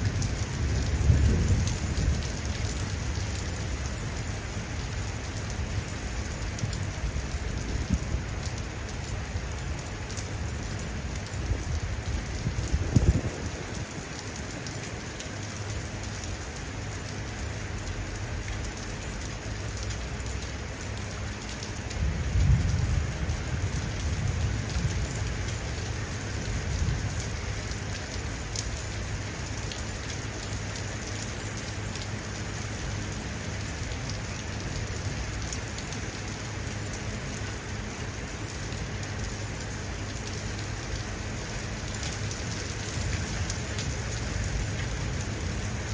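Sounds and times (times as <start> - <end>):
thunder rumbling: 0.0 - 3.2, 11.5 - 13.9, 22.0 - 25.5
rain falling: 0.0 - 45.9.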